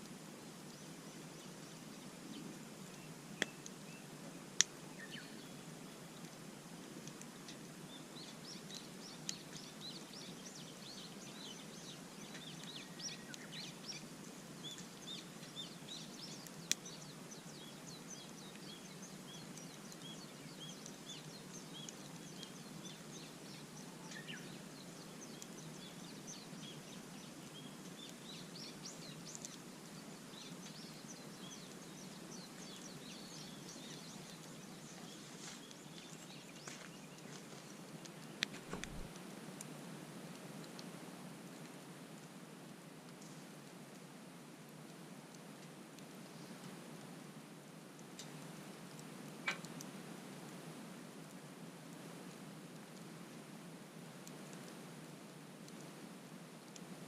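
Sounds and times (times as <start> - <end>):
campfire popping: 0.0 - 42.4, 48.0 - 50.5
songbirds twittering: 0.4 - 6.4, 7.1 - 39.2.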